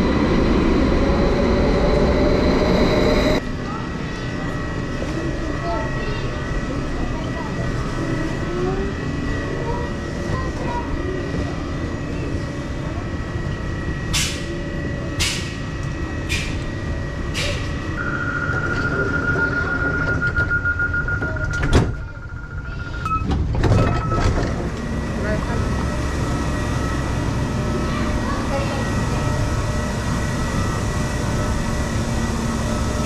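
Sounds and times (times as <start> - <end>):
station rumble: 0.0 - 33.0
train doors clunking shut: 21.2 - 22.1, 23.0 - 24.8.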